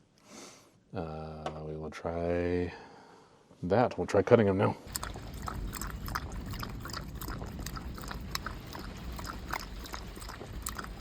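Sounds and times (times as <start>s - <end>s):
steady low rumble: 4.8s - 11.0s.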